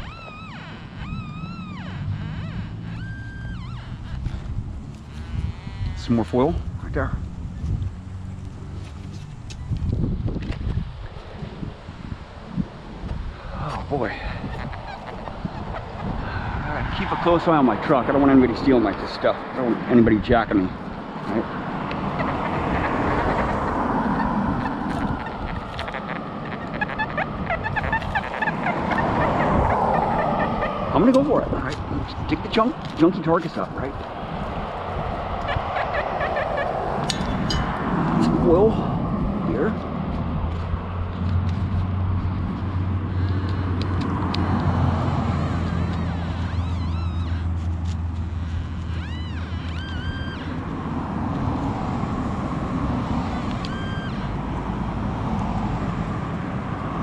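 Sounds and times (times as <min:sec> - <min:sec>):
metal detector warbling tones: 0:00.0 - 0:04.1.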